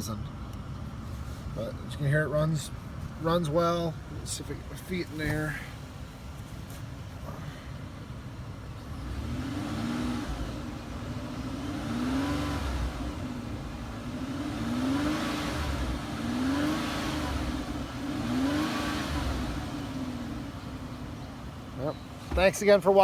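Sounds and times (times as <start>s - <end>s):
car engine revving: 7.2s - 23.0s.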